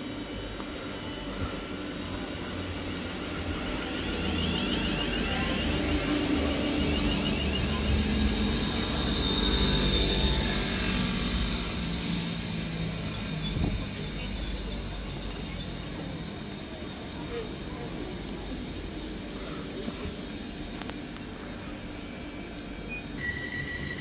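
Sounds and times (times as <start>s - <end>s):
train wheels and motors rumbling: 0.0s - 24.0s
high steady brake squeal: 3.2s - 19.8s, 21.6s - 24.0s.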